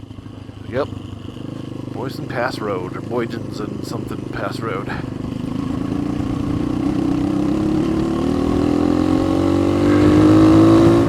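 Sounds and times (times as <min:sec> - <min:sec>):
motorcycle engine pulling: 0:00.0 - 0:11.0.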